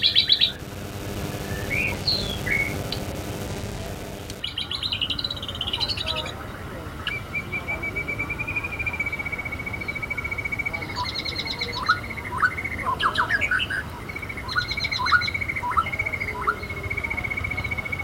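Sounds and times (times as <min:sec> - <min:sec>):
rapid high trill: 0:00.0 - 0:04.4.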